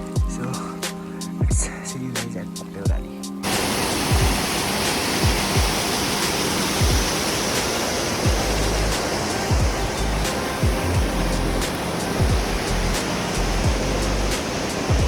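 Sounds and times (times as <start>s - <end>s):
background music with bass hits: 0.0s - 15.0s
loud rushing water: 3.4s - 15.0s.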